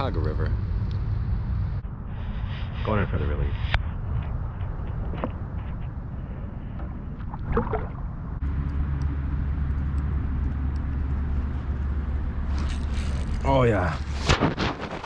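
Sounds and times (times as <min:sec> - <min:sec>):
low motor hum: 0:03.8 - 0:14.2.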